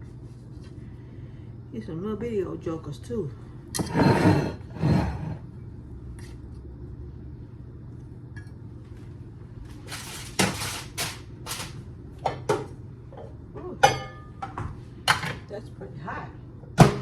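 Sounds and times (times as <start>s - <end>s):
dishes clattering and scraping: 3.8s - 5.4s, 12.2s - 15.5s.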